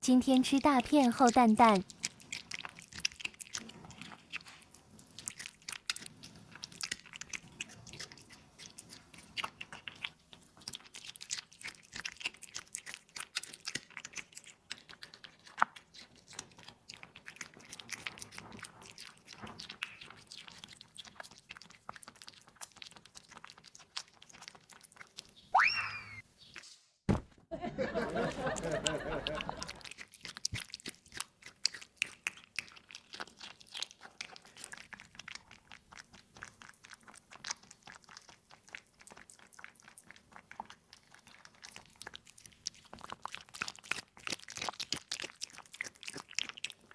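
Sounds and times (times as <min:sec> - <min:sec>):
cat crunching food: 0:00.4 - 0:25.4, 0:28.3 - 0:46.9.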